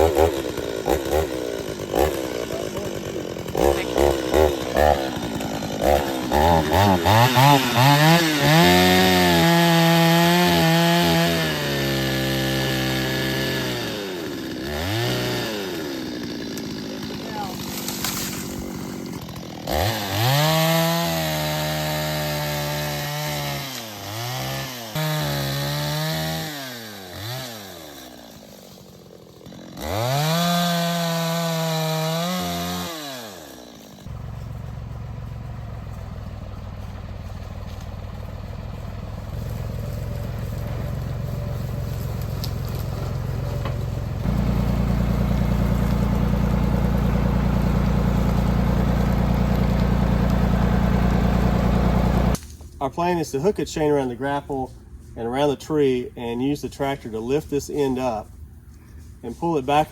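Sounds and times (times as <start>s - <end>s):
chainsaw cutting at high revs: 0.0s - 36.1s, 36.8s - 52.4s
engine idling: 34.1s - 52.4s.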